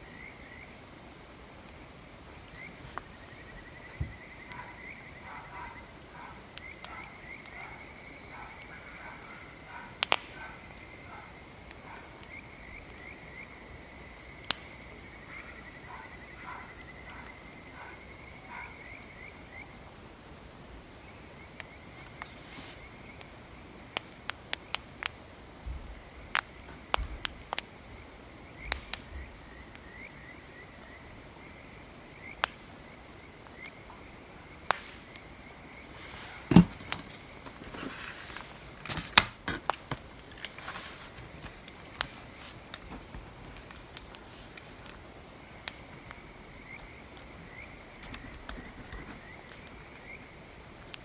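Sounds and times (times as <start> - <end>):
wood fire crackling and popping: 1.6 - 5.0, 10.0 - 11.0, 21.6 - 31.1, 32.1 - 51.0
faint high chirping: 1.6 - 19.9.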